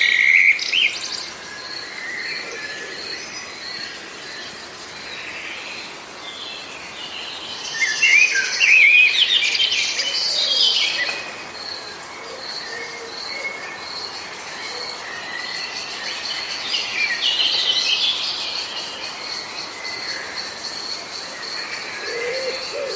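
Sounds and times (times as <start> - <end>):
birds chirping and twittering: 0.0 - 22.9.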